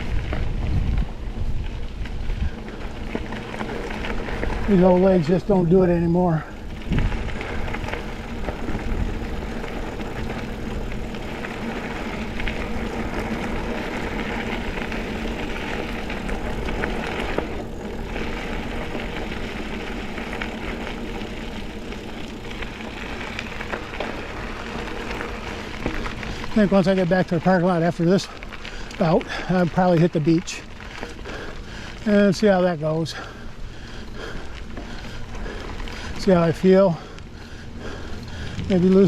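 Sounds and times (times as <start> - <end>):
bike ticks and rattles: 0.0 - 39.0
bike tyres rolling on dirt: 0.0 - 39.0.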